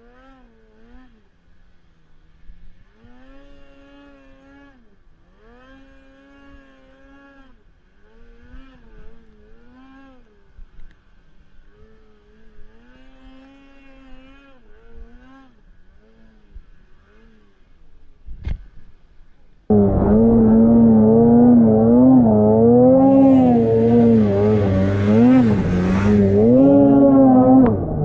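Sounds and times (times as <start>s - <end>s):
snowmobile engine revving: 19.7s - 28.0s.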